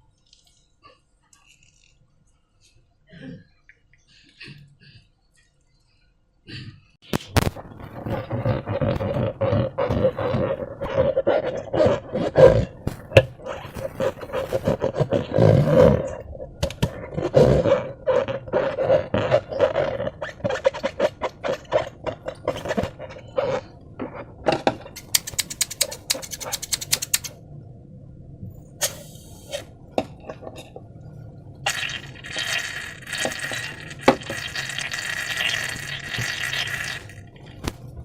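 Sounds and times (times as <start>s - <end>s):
slime squelching: 7.1s - 27.4s, 31.6s - 37.8s
sticky clicks: 25.0s - 27.4s.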